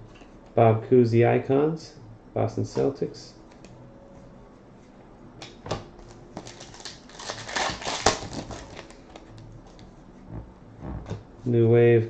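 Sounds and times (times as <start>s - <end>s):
cards rustling: 6.0s - 9.8s.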